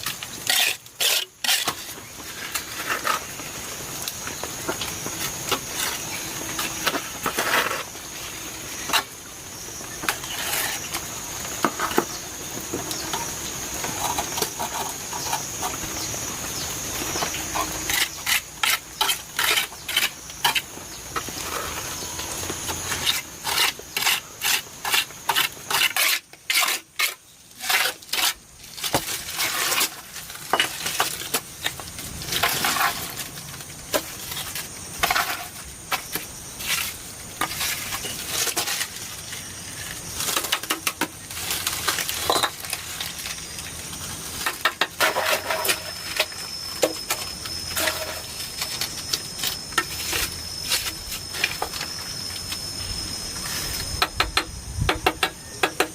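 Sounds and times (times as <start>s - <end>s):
hard objects clicking and knocking: 54.0s - 55.9s.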